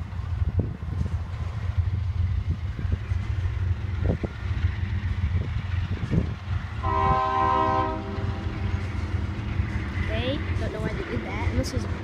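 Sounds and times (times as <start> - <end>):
freight train rumbling past: 0.0 - 12.0
locomotive air horn chord: 6.8 - 8.4.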